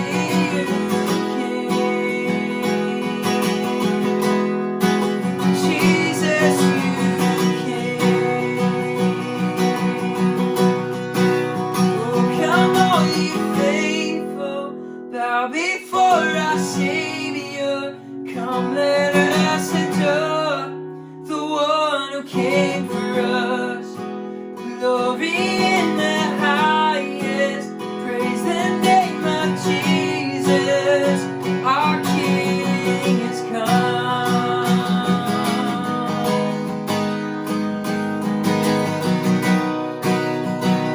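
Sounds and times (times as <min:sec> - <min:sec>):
strummed acoustic guitar: 0:00.0 - 0:40.9
worship band music: 0:05.2 - 0:10.1.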